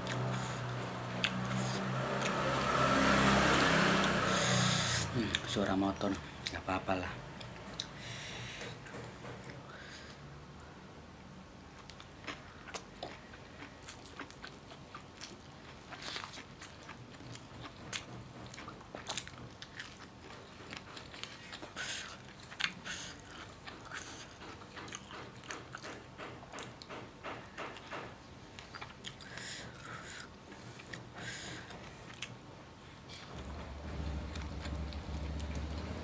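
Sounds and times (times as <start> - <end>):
chewing crispy fried chicken: 11.7 - 27.0.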